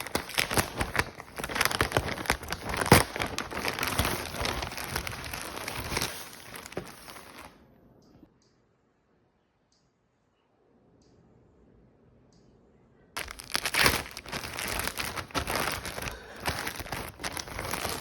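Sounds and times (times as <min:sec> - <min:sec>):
crinkling and crackling clicks: 0:00.0 - 0:07.5, 0:13.2 - 0:18.0.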